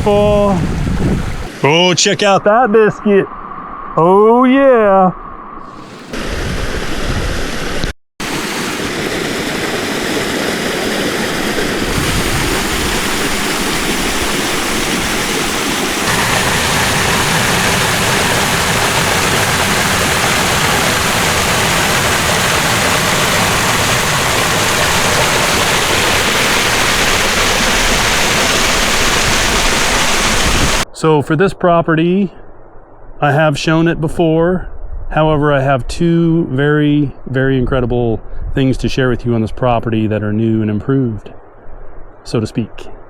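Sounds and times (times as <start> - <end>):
waterfall rushing: 5.7 - 30.8.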